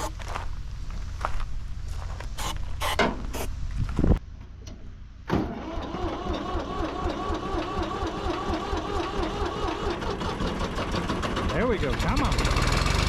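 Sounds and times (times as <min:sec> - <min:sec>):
tractor starter cranking engine: 0:05.3 - 0:13.0.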